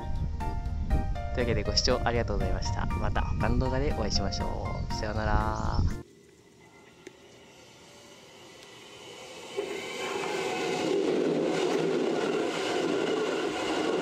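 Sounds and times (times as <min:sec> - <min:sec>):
high wheel squealing: 0:07.4 - 0:14.0
train wheels rumbling on steel bridge: 0:09.2 - 0:14.0.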